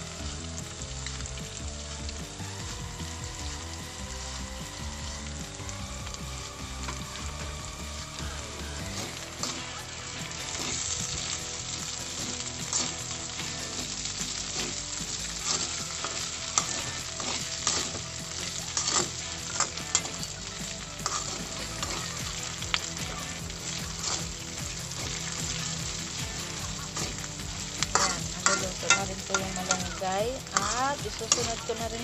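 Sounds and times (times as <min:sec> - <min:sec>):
food sizzling in oil: 0:00.0 - 0:32.0
metal spoon scraping a pan: 0:08.8 - 0:32.0.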